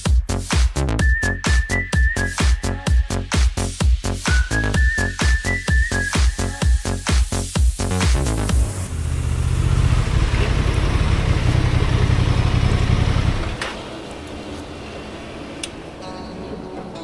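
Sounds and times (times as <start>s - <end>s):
motorcycle engine running: 8.5s - 13.6s.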